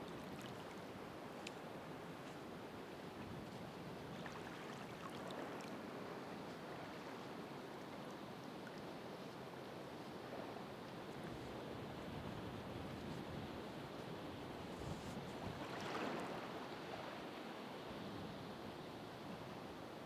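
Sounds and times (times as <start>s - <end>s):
ocean waves washing on shore: 0.0s - 19.1s
faint high ticks: 1.4s - 1.6s.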